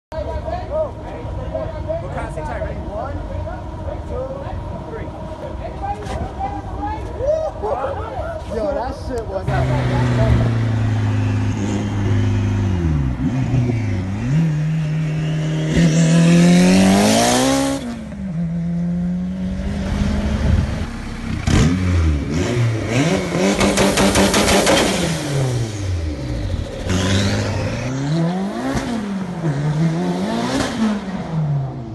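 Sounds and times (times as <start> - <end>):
car engine revving: 9.4 - 31.9.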